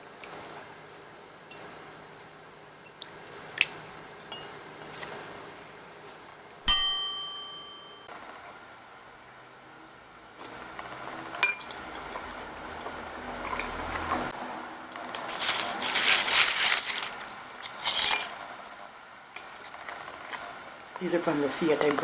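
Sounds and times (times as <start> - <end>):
sharp clink with ring: 6.7 - 8.1.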